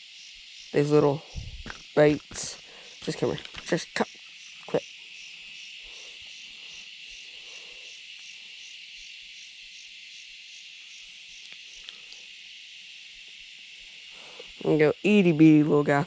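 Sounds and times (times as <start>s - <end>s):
insect buzz: 0.0s - 16.0s
pulsing insect chirp: 0.0s - 16.0s
faint ticks: 11.4s - 12.3s.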